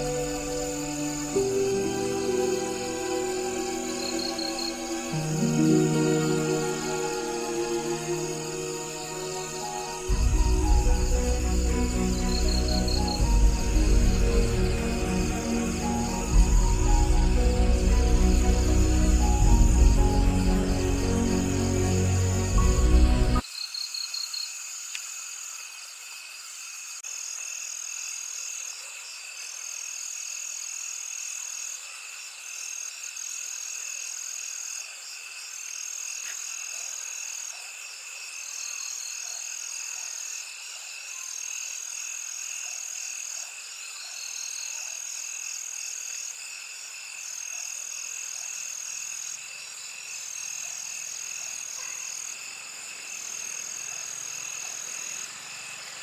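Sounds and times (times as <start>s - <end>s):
low drone: 0.0s - 23.4s
high trills of night animals: 0.0s - 24.5s, 48.2s - 56.0s.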